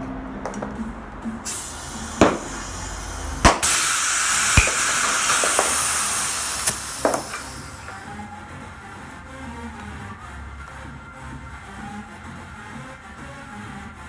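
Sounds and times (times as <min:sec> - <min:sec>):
air gun click: 0:01.4 - 0:08.0
compressed air hissing: 0:01.4 - 0:08.2.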